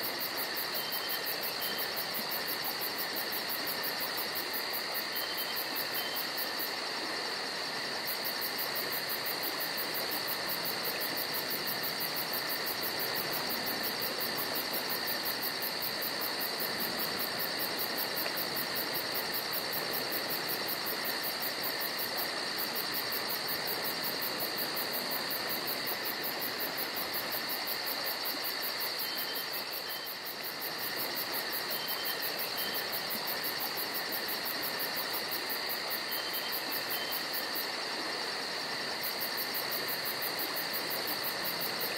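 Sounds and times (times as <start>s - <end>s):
crickets trilling: 0.0s - 41.9s
faint hiss: 0.0s - 41.9s.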